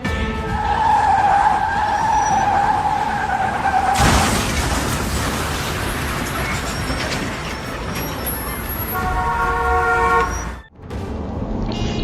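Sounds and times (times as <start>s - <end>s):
car tyres screeching: 0.4s - 10.7s
sudden impact noise: 3.9s - 7.4s, 10.8s - 12.0s.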